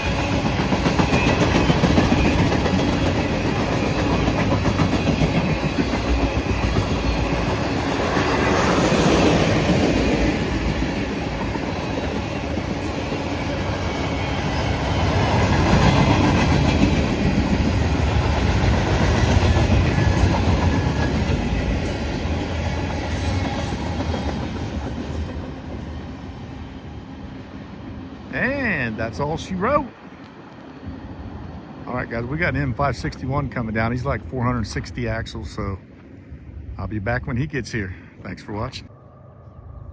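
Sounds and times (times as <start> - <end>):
wheels clacking over rail joints: 0.0 - 26.1
freight train rolling past: 0.0 - 39.9.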